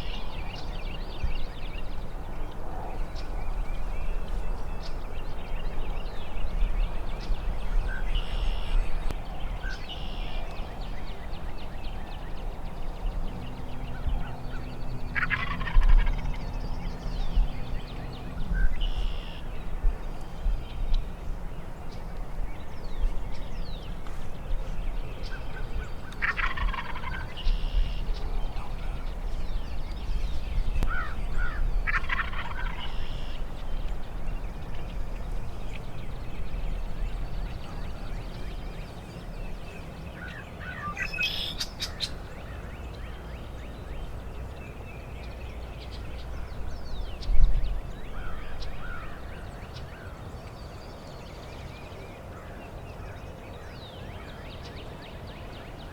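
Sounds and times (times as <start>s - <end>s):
turkeys gobbling: 15.2s - 16.4s, 26.2s - 27.3s, 31.9s - 33.2s.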